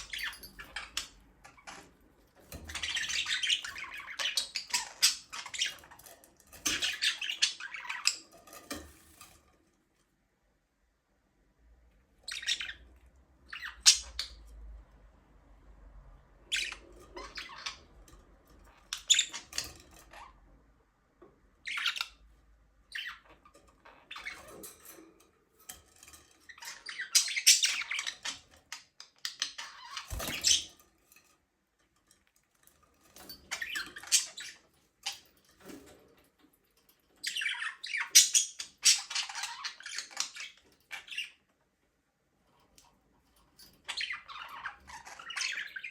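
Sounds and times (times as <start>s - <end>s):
budgerigars chirping and squawking: 0.0s - 9.2s, 12.2s - 14.6s, 16.4s - 20.4s, 21.5s - 25.2s, 26.0s - 30.8s, 33.3s - 35.9s, 37.1s - 41.5s, 43.6s - 45.9s.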